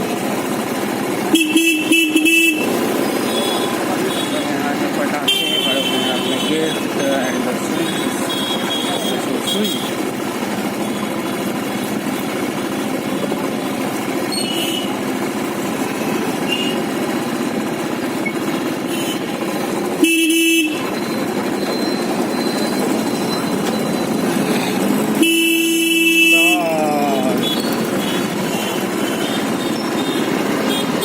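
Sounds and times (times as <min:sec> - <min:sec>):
motorcycle engine and road noise: 0:00.0 - 0:31.0
vehicle horn honking: 0:01.3 - 0:10.0, 0:18.8 - 0:19.4, 0:20.0 - 0:21.2, 0:25.1 - 0:31.0.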